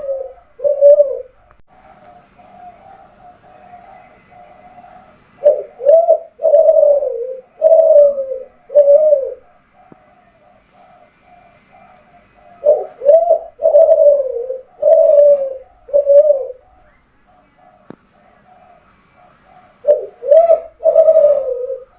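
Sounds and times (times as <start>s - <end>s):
dove cooing: 0.0s - 21.9s.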